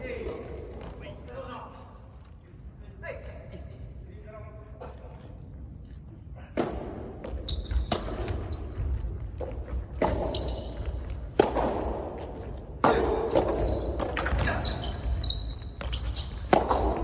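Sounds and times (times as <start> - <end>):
shoe squeaks: 0.5 - 1.1, 7.4 - 17.0
tennis ball hits: 11.3 - 12.1, 15.8 - 17.0.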